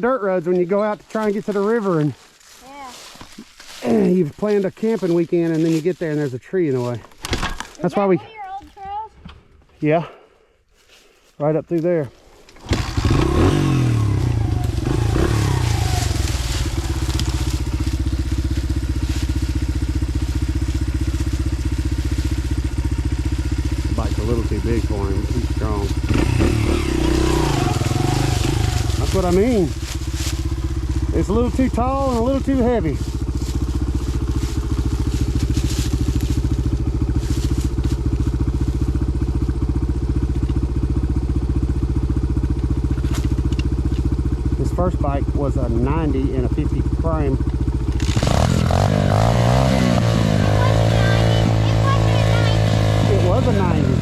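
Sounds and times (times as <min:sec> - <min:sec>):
dirt bike engine revving: 0:12.6 - 0:54.0.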